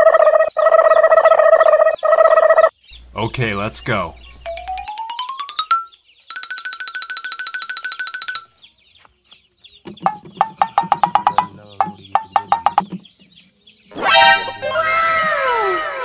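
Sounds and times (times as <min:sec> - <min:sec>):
chicken clucking: 0:00.0 - 0:04.6, 0:08.6 - 0:14.8
loud cartoon sound effect: 0:13.9 - 0:16.0.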